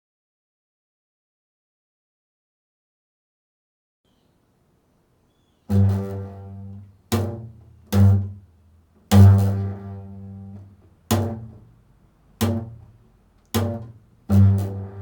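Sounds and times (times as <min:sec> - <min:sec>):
plucked bass notes: 0:05.7 - 0:08.5, 0:09.1 - 0:11.8, 0:12.4 - 0:13.0, 0:13.6 - 0:15.0.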